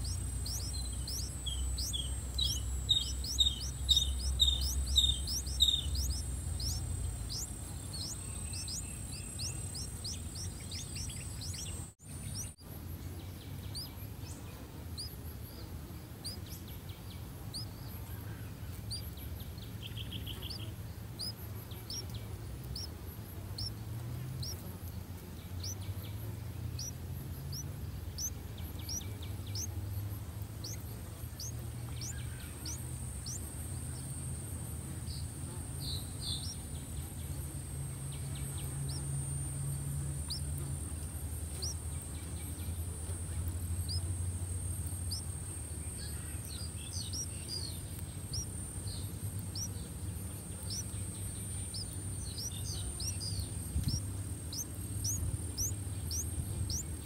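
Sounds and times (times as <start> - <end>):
high thin bird chirps: 0.0 - 12.6, 30.5 - 34.4, 40.2 - 50.0, 50.6 - 57.0
steady high whine: 0.0 - 12.6, 27.5 - 57.0.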